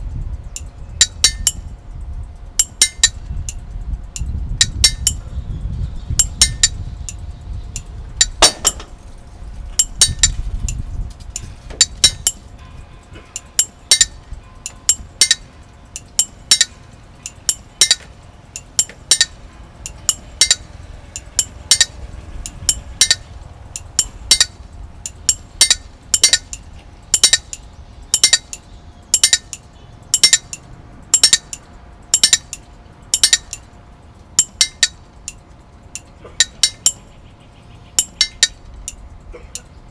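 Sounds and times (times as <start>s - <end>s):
low rumble: 0.0s - 29.2s
sharp clinks of small hard objects: 6.1s - 33.8s.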